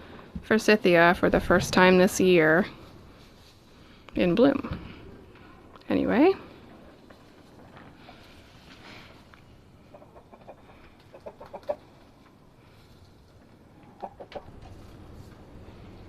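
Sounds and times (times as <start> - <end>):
hens clucking: 9.6 - 12.5, 13.6 - 15.0.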